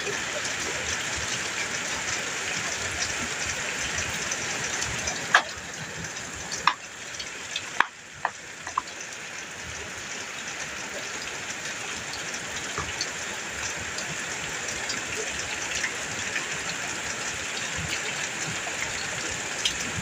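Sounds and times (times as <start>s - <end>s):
heavy rain on metal roof: 0.0s - 20.0s.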